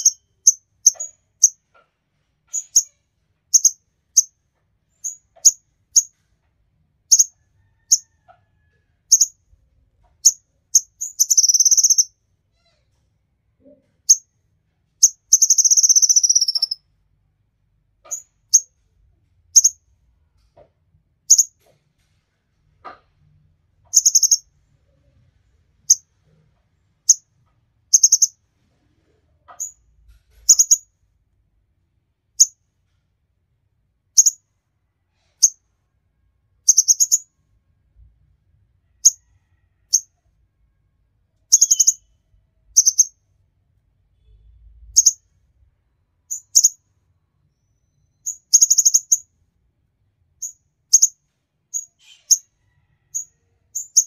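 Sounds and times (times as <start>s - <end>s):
songbird chirping: 0.0s - 1.6s, 2.5s - 6.2s, 9.1s - 12.2s, 15.0s - 16.8s, 23.8s - 25.0s, 27.9s - 28.4s, 30.5s - 30.9s, 36.6s - 37.4s, 41.4s - 43.2s, 46.3s - 49.3s, 50.4s - 54.0s.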